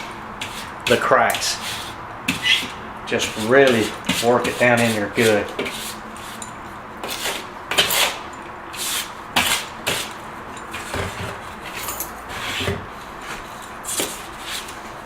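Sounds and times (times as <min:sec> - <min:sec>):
sanding pad scraping tile: 0:00.0 - 0:06.4, 0:07.0 - 0:10.1.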